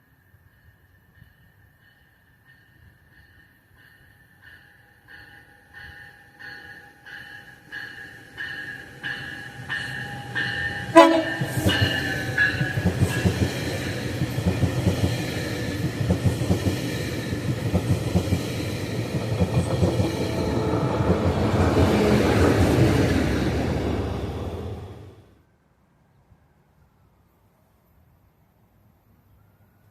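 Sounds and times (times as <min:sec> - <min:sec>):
passenger train passing: 0:00.4 - 0:25.4
crossing bell ringing: 0:01.8 - 0:16.0, 0:18.5 - 0:25.1
train wheels clattering over rails: 0:09.1 - 0:25.1.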